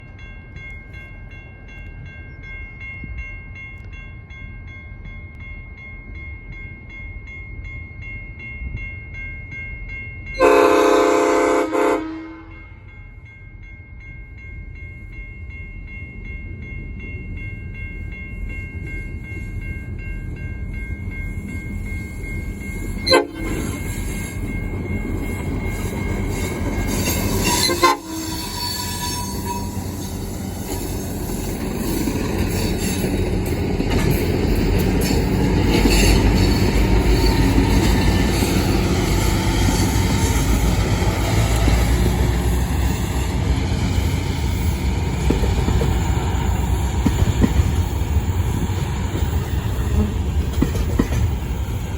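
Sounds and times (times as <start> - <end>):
train horn blasts: 10.4 - 12.8, 23.0 - 23.7, 27.0 - 30.0
locomotive engine rumble: 20.3 - 51.9.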